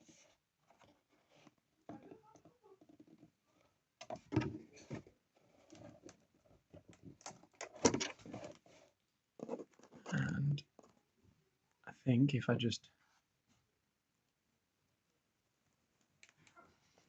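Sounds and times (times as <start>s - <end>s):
cardboard box rustling and scraping: 7.9s - 10.2s.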